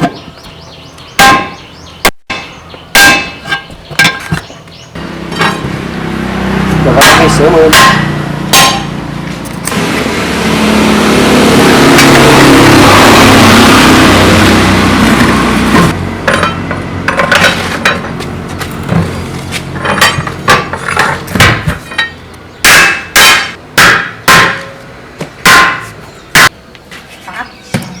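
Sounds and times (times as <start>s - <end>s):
hammer blows: 5.0s - 9.1s, 19.9s - 26.6s
loud machine noise: 5.0s - 25.8s.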